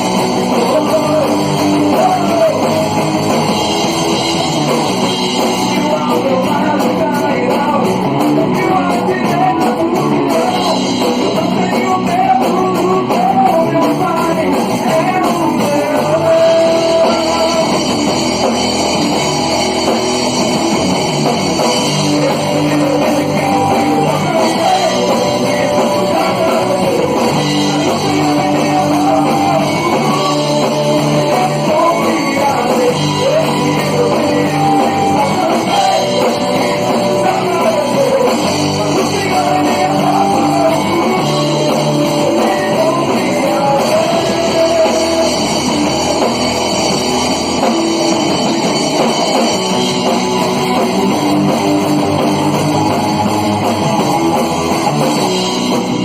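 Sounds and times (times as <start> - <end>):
person singing: 0.0 - 18.6, 21.6 - 46.6
rock guitar: 0.0 - 56.0.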